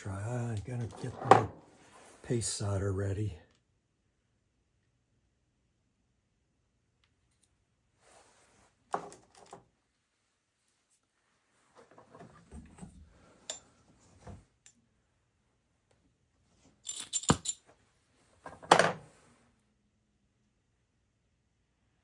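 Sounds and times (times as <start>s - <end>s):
small metal tools rustling and clinking: 16.6s - 17.7s.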